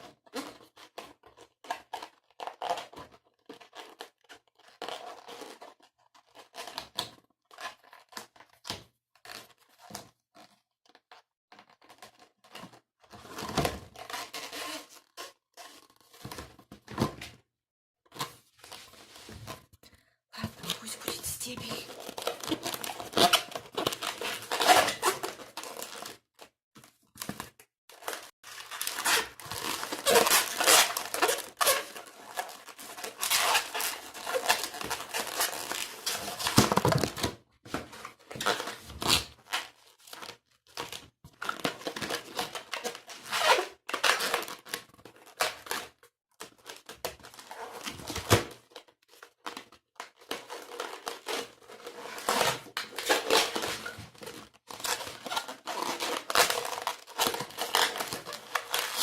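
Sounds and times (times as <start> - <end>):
rubber balloon squeaking and rubbing: 20.4 - 26.0, 28.9 - 37.1.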